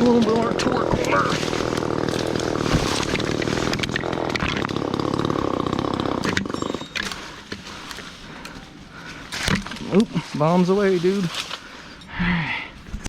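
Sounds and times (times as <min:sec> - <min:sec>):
chainsaw cutting wood: 0:00.0 - 0:08.1.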